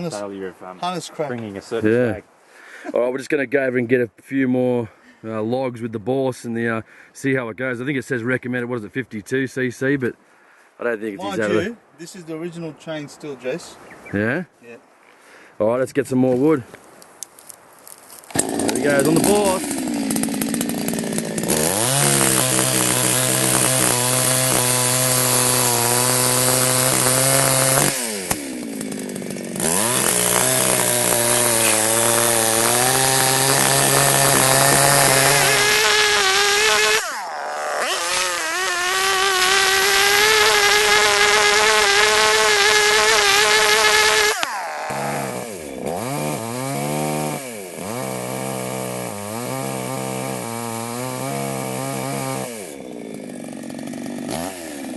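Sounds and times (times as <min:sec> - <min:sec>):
chainsaw cutting logs: 0:18.3 - 0:54.9.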